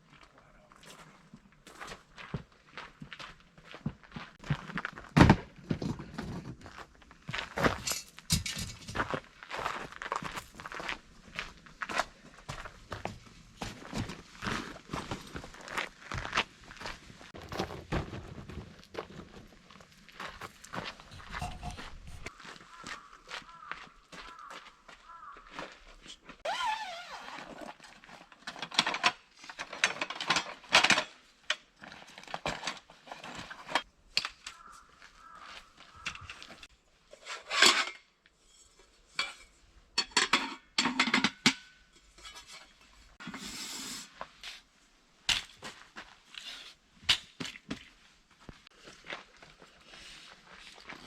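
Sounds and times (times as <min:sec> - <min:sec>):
dishes and utensils clattering: 0:07.8 - 0:09.0, 0:21.1 - 0:22.3, 0:37.2 - 0:43.3.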